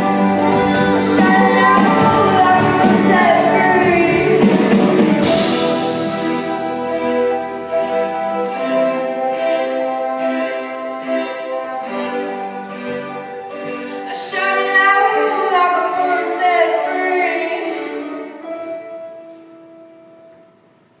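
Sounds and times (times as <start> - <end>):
music accompaniment: 0.0 - 21.0
woman singing: 0.6 - 5.2, 14.0 - 18.8.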